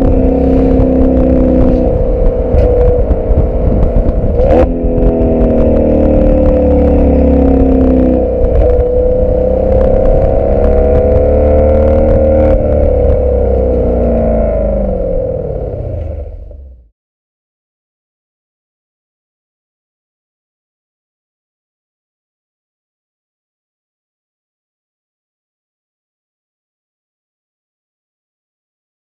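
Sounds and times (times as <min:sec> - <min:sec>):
car engine driving: 0:00.0 - 0:16.9
exhaust crack: 0:00.0 - 0:16.9
wind rumble on microphone: 0:00.0 - 0:16.9.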